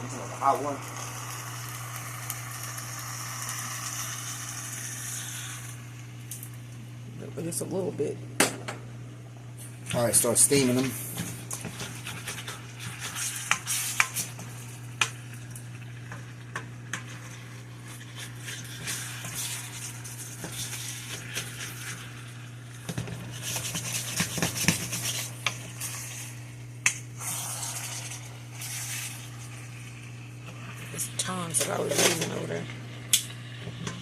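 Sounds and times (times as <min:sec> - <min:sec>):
sizzling: 0:00.0 - 0:07.7, 0:09.2 - 0:34.0
utensil scraping in a pan: 0:09.9 - 0:32.6.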